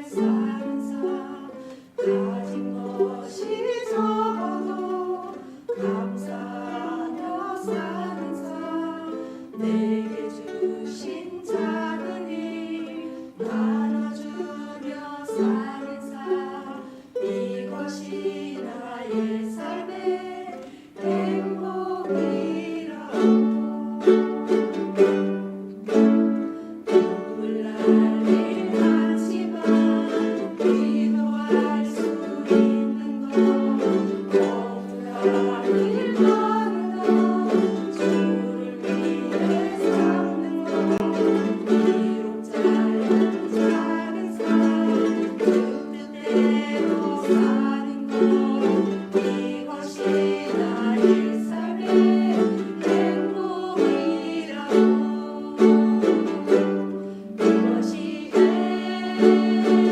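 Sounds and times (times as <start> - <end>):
ukulele ensemble strumming: 0.0 - 59.9.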